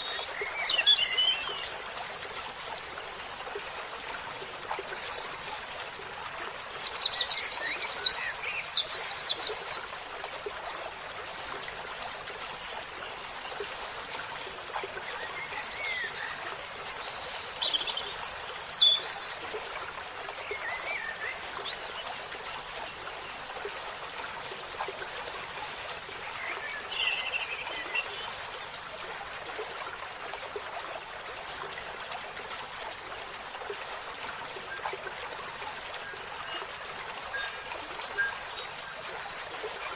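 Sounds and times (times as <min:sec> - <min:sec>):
songbirds twittering: 0:00.0 - 0:28.9
stream trickling: 0:00.0 - 0:39.9.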